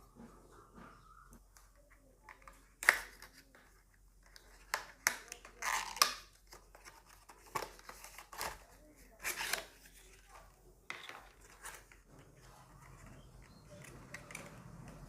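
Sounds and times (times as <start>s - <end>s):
plastic packaging click: 2.3s - 3.4s.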